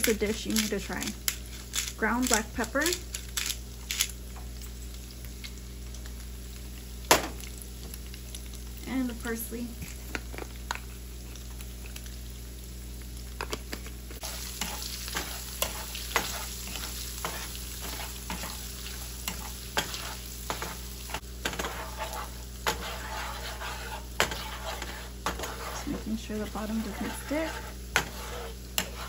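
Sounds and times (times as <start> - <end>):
sausages sizzling in a pan: 0.0 - 29.0
spatula scraping a pan: 14.2 - 29.0.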